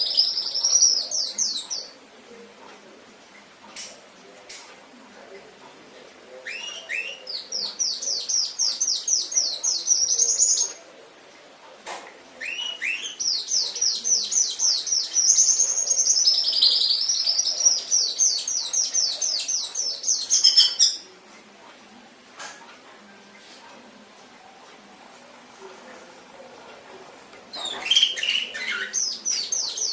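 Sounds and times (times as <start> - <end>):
canary singing trills: 0.0 - 2.0, 6.4 - 10.8, 12.4 - 21.1, 27.5 - 29.9.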